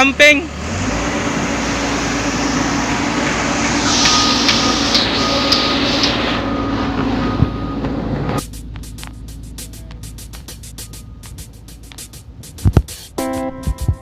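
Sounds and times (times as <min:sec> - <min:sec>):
diesel engine running: 0:00.0 - 0:14.0
hiss: 0:03.6 - 0:06.4.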